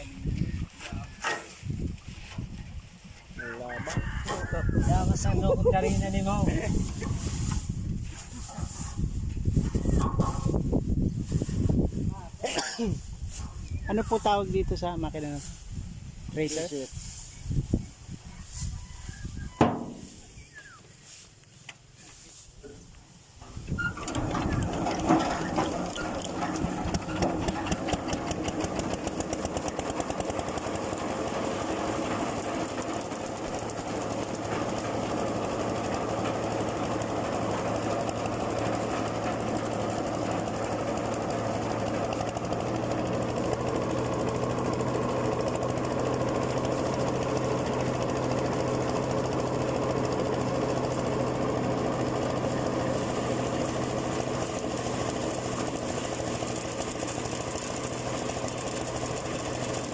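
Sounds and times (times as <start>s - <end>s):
thresher engine hum: 4.2s - 14.8s, 19.6s - 21.1s, 22.6s - 59.9s
fast uneven rattle: 23.5s - 59.9s.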